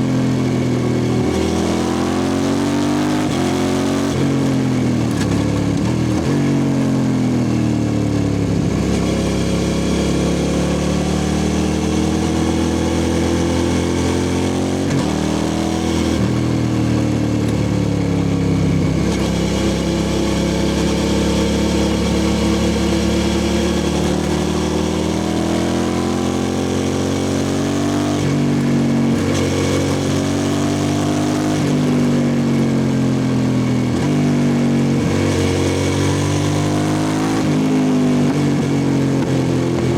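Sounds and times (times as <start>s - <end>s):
motorcycle engine revving loud: 0.0s - 39.9s.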